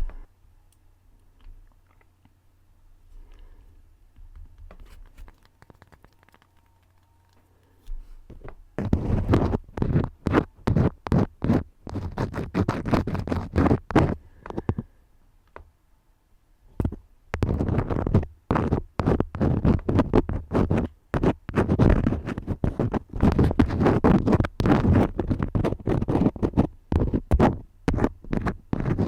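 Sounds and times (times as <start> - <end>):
crayons scratching on paper: 8.3 - 14.7, 17.4 - 29.0.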